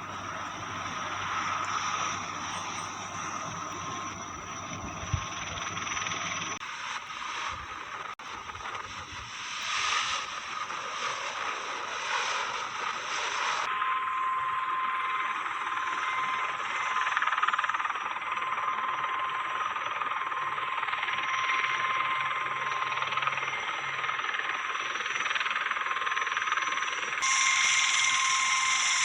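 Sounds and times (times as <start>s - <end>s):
helicopter rushing noise: 0.0s - 13.9s.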